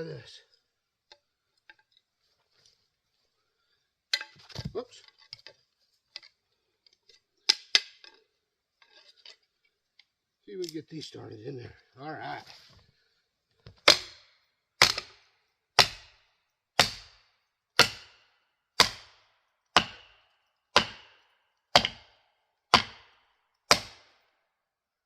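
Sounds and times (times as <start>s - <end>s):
wedges hammered into tree: 13.7s - 16.2s, 16.8s - 24.2s.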